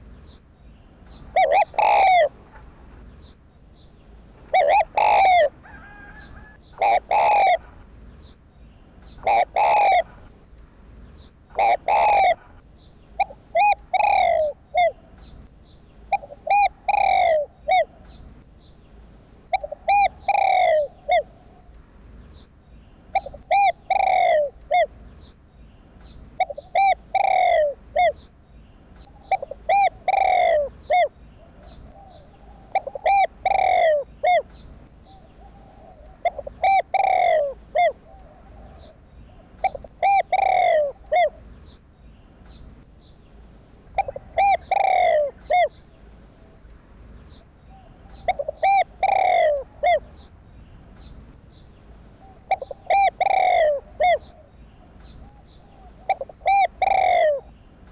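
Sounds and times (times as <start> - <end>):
dove cooing: 1.1 - 3.0, 4.4 - 7.8, 9.1 - 10.3, 11.5 - 15.2, 16.1 - 18.2, 19.5 - 21.7, 23.1 - 24.9, 26.4 - 28.2, 29.0 - 41.5, 43.9 - 46.6, 47.3 - 50.3, 52.2 - 57.5.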